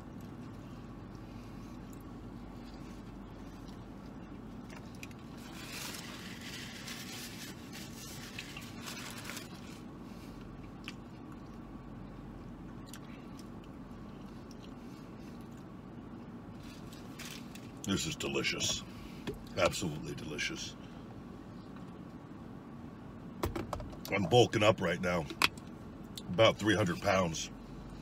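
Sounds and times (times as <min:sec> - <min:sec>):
man chewing food: 0:00.0 - 0:06.6, 0:12.7 - 0:15.7
steady low hum: 0:00.0 - 0:28.0.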